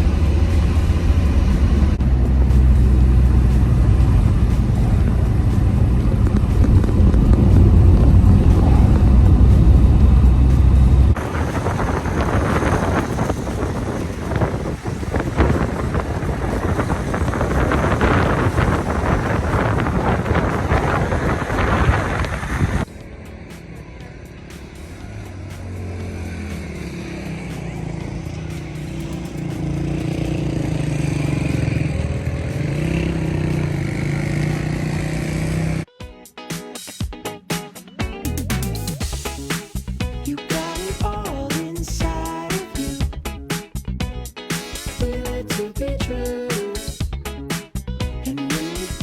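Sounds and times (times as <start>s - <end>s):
wind buffeting microphone: 0.0s - 23.2s
vehicle engine and road noise: 0.0s - 35.9s.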